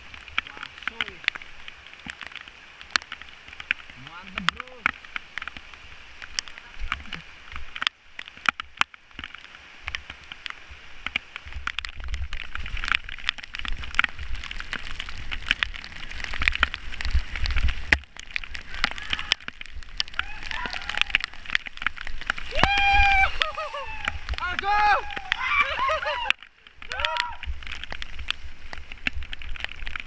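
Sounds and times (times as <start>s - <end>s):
rain hissing: 0.0s - 30.0s
raindrops ticking: 0.0s - 30.0s
low wind rumble: 12.1s - 30.0s.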